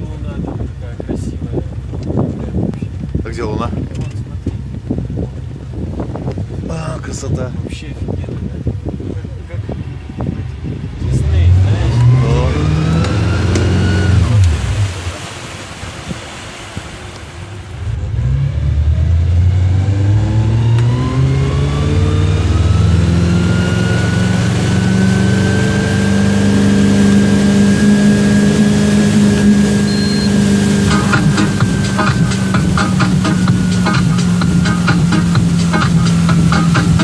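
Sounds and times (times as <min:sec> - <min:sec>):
boat engine accelerating: 0:00.0 - 0:37.0.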